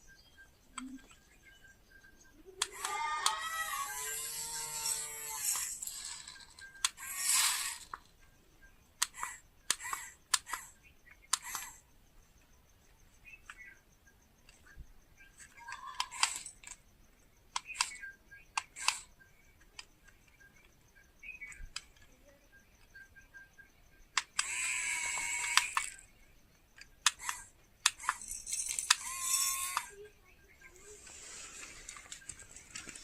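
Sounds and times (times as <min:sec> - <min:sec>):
plastic toys clicking and tapping: 0:02.6 - 0:08.3, 0:09.0 - 0:11.8, 0:15.4 - 0:16.8, 0:17.5 - 0:20.7, 0:24.2 - 0:26.0, 0:26.7 - 0:30.0.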